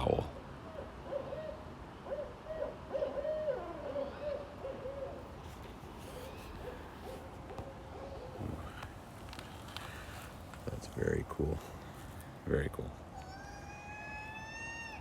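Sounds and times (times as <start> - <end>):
owl hooting: 0.0 - 5.3, 6.0 - 9.0, 13.1 - 15.0.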